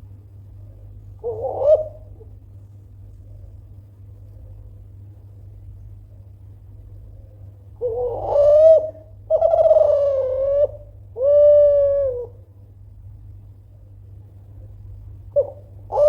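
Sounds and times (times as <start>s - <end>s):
dove cooing: 0.7s - 2.4s, 7.8s - 12.4s, 15.3s - 16.0s.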